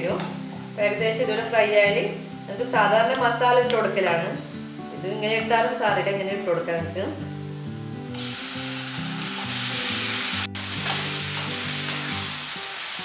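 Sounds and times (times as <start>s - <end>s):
background music: 0.0s - 13.0s
chicken sizzling in a frying pan: 8.1s - 13.0s.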